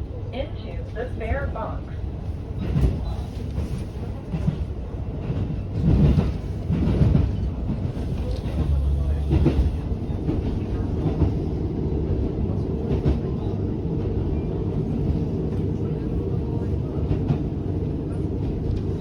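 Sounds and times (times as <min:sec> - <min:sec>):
railcar engine and wheels rumbling: 0:00.0 - 0:19.0.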